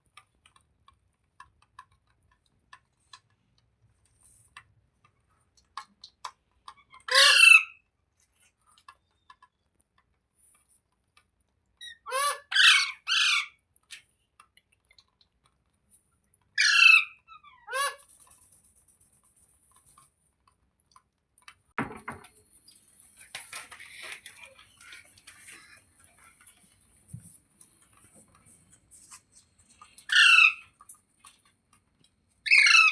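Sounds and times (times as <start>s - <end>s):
parrot squawking: 6.9s - 7.8s, 11.8s - 13.6s, 16.6s - 18.0s, 30.0s - 30.8s, 32.4s - 32.9s.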